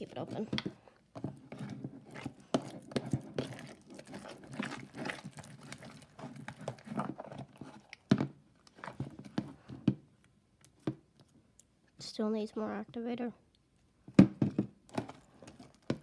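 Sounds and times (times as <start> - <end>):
sticky slime squelches: 0.0 - 9.9.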